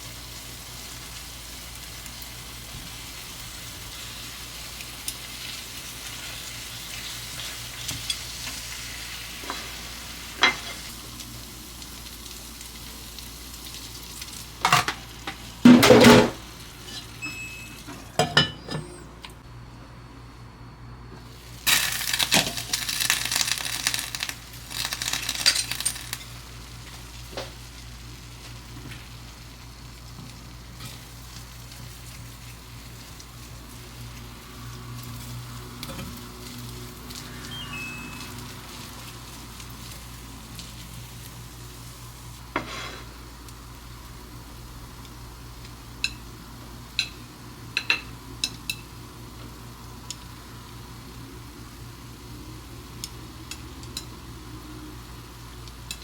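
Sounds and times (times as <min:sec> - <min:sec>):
food sizzling in a frying pan: 0:00.0 - 0:18.5, 0:21.2 - 0:56.0
utensils clinking against pan: 0:21.7 - 0:26.2
scraping in pan: 0:42.5 - 0:43.2.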